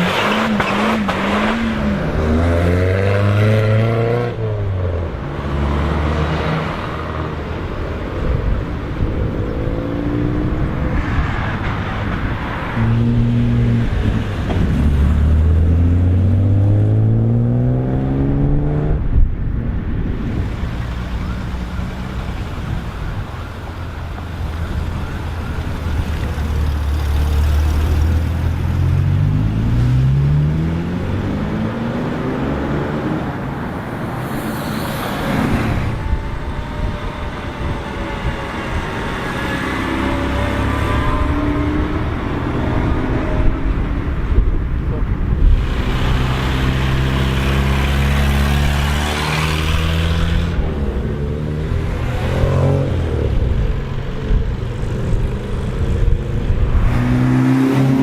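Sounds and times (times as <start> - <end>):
car engines accelerating: 0.0 - 58.0
rush of noise: 29.2 - 58.0.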